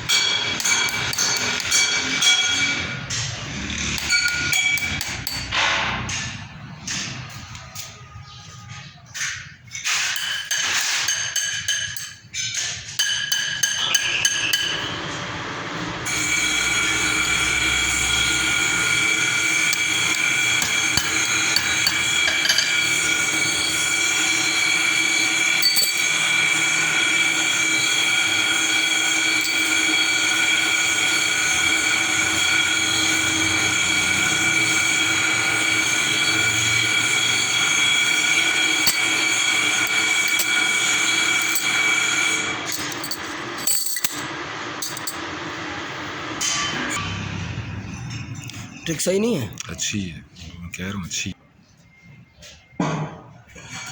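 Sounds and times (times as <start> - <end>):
lathe ringing whine: 0.0 - 5.6, 13.1 - 49.4
metallic clinks and knocks: 20.6 - 23.0.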